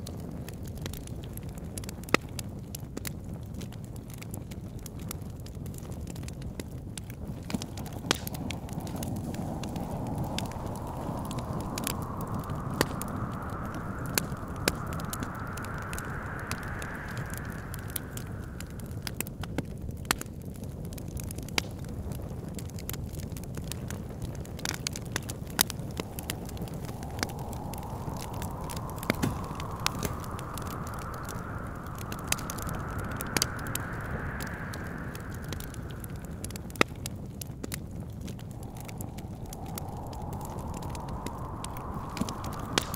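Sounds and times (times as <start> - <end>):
wood fire crackling and popping: 0.0 - 42.9
wind whistling gusts: 7.0 - 20.2, 22.6 - 42.9.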